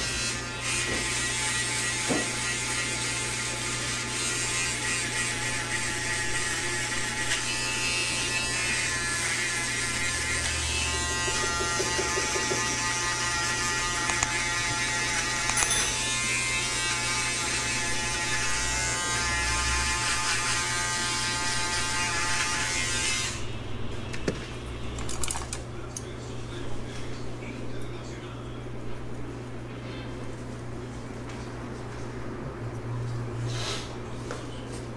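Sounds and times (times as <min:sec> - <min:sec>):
electric hair clipper buzzing: 0:00.0 - 0:23.5.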